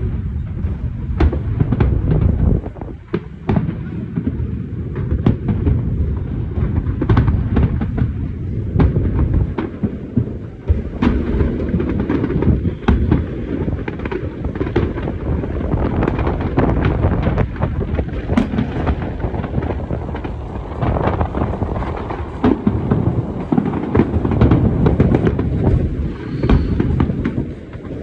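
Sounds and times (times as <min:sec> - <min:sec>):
low rumble of booms: 0:00.0 - 0:28.0
firework shells bursting: 0:10.9 - 0:28.0.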